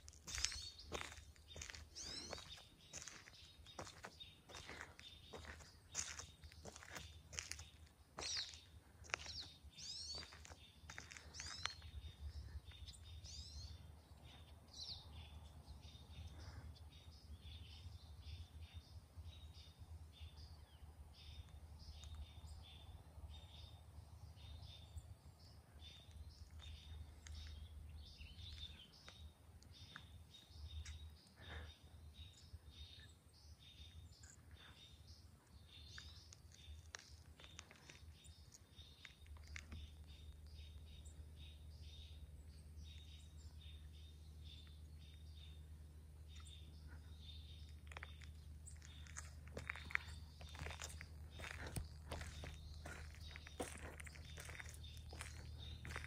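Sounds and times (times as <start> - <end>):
songbirds chirping: 0.0 - 56.0
steady low rumble: 31.9 - 56.0.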